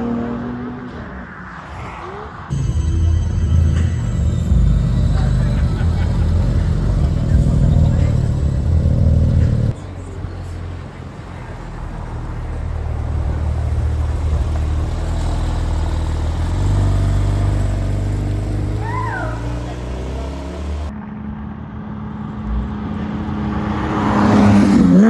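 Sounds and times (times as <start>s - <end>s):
loud deep engine running: 2.5s - 9.7s
quieter engine drone: 2.5s - 9.9s.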